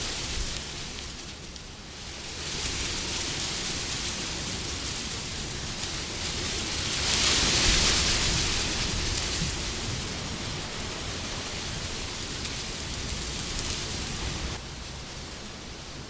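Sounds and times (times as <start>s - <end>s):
wind blowing: 2.4s - 16.0s.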